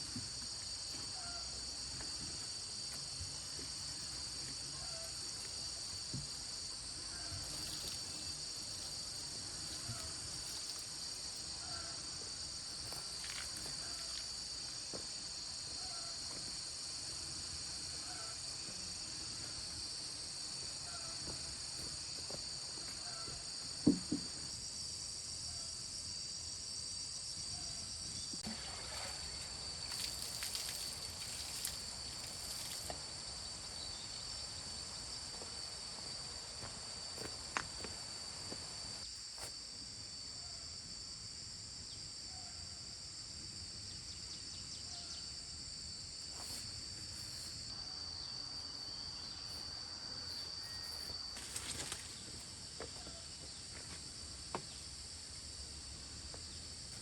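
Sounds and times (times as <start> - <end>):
insects shrilling: 3.8 - 14.3, 28.4 - 33.1, 46.1 - 48.4, 49.0 - 52.5.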